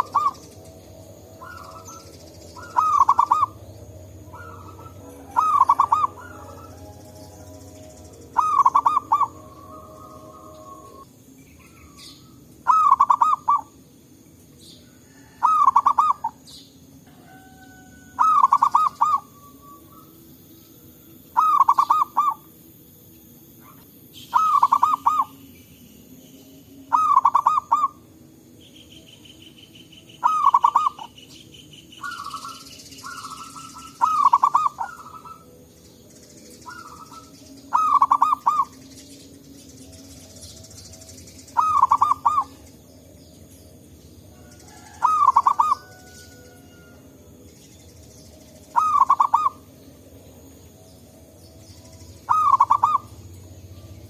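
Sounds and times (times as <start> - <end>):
faint bird calls: 0.0 - 0.7, 1.4 - 7.7, 8.3 - 13.8, 14.8 - 20.2, 21.3 - 22.5, 23.6 - 25.4, 28.7 - 35.6, 36.6 - 38.8, 41.5 - 42.7, 44.4 - 47.0, 48.7 - 49.7, 52.2 - 53.3
dove cooing: 0.0 - 13.8, 14.9 - 20.3, 21.3 - 22.5, 23.6 - 25.4, 26.9 - 28.0, 30.2 - 31.2, 32.0 - 35.5, 36.6 - 38.8, 41.4 - 42.7, 44.3 - 47.1, 48.7 - 49.7, 52.1 - 54.0.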